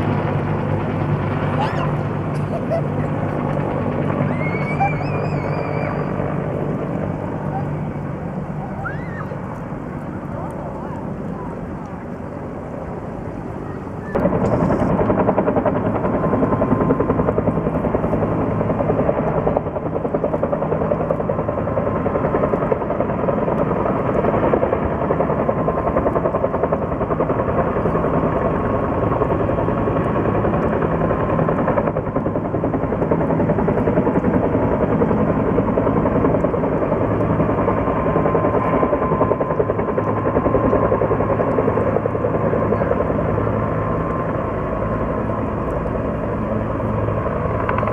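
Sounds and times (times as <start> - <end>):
low engine drone: 0.0 - 15.6
helicopter rotor beating: 0.0 - 47.9.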